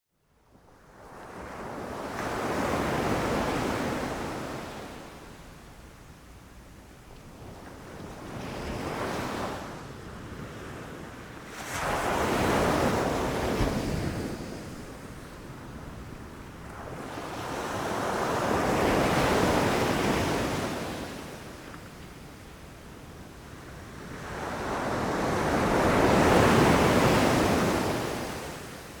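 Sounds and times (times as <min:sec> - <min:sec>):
ocean waves breaking on beach: 0:07.4 - 0:29.0.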